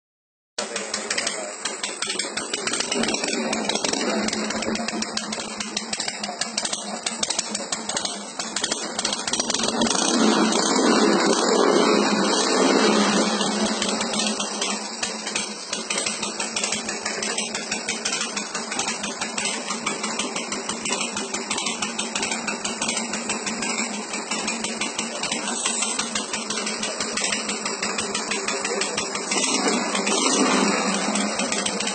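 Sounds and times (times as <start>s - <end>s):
motorcycle engine idling and revving: 0.6s - 31.9s.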